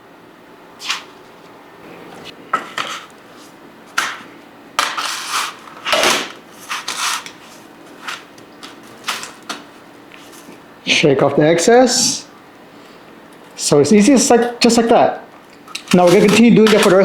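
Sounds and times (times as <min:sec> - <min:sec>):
breadcrumbs crunching and rustling: 0:15.8 - 0:17.0.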